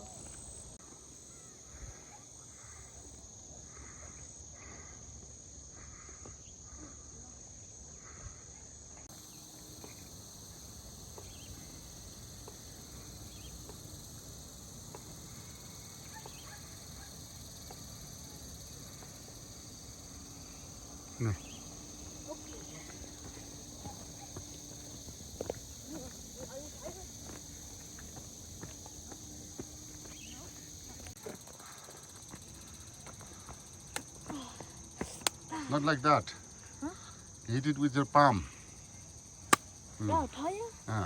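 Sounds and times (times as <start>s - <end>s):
insects shrilling: 9.1s - 41.0s.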